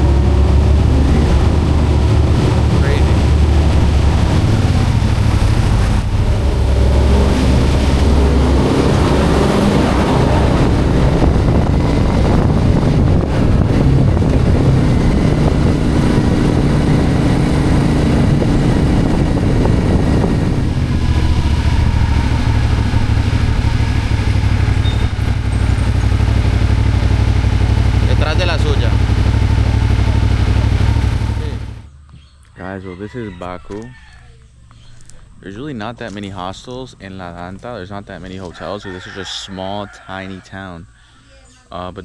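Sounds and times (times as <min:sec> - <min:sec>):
motorcycle engine running: 0:00.0 - 0:31.9.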